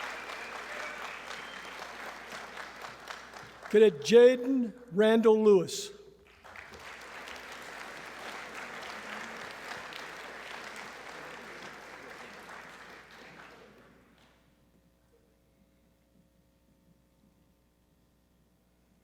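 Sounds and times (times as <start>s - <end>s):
audience applauding: 0.0s - 4.5s, 6.2s - 14.3s.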